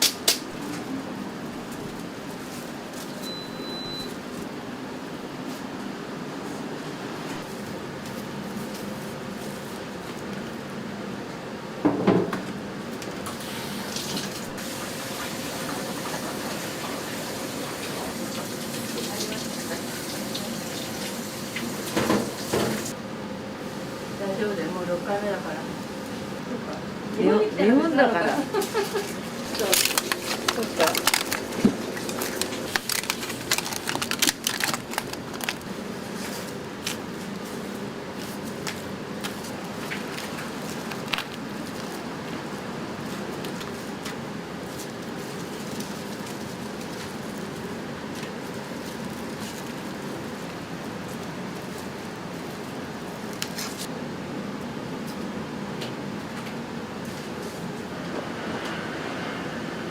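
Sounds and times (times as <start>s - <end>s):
steady background hum: 0.0s - 59.9s
water running: 13.3s - 23.0s, 28.4s - 34.0s.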